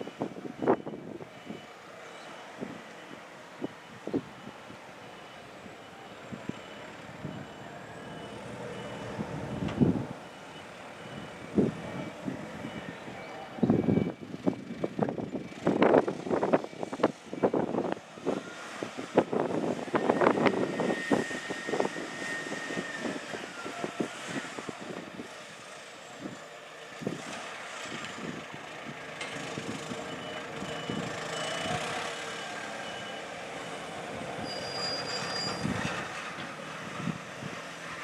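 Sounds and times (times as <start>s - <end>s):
reversing alarm beeping: 0.0s - 18.9s, 19.8s - 24.7s, 29.7s - 35.9s.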